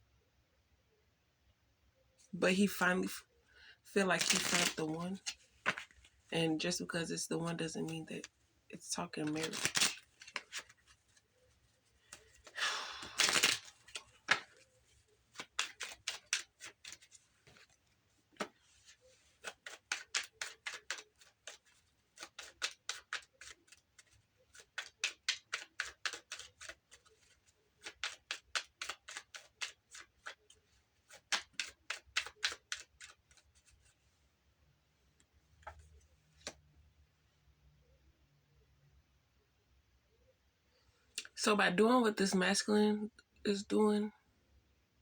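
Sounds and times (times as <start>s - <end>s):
playing cards being shuffled: 4.2s - 6.1s, 9.1s - 34.0s.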